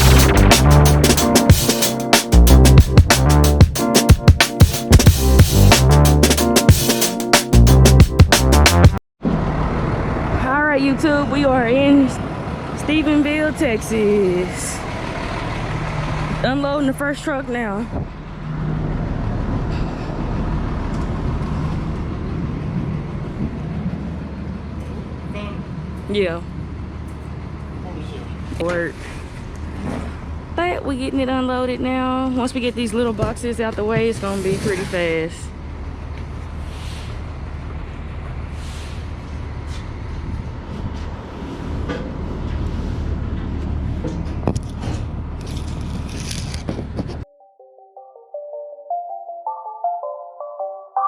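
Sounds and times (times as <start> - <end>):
vehicle engine rumbling: 0.0 - 1.2, 9.2 - 28.6, 35.6 - 47.2.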